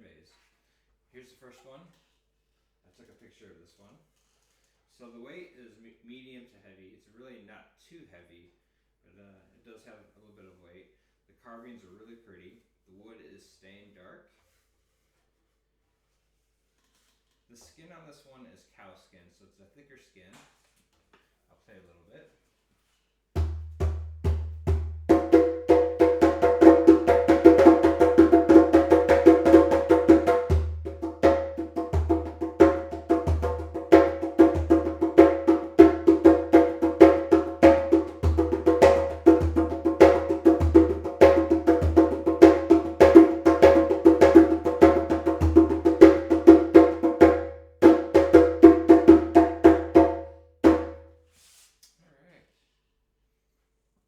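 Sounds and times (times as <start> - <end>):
djembe played by hand: 23.4 - 51.1.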